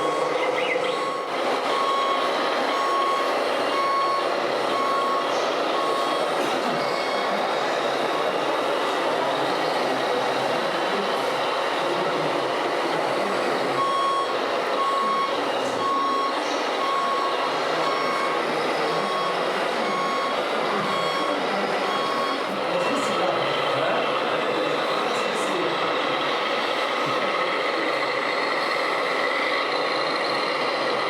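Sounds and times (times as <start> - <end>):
reversing beeper: 0.0 - 8.3, 12.7 - 23.9
steady background noise: 0.0 - 31.0.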